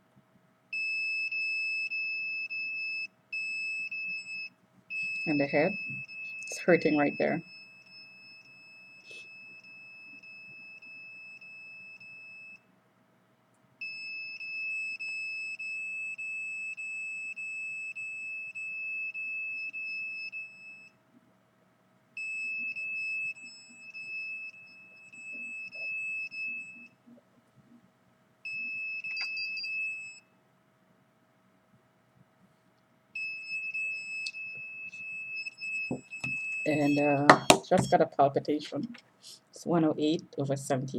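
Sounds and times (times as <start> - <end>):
high-pitched alarm tone: 0.9 - 12.5, 22.2 - 27.0, 33.2 - 38.4.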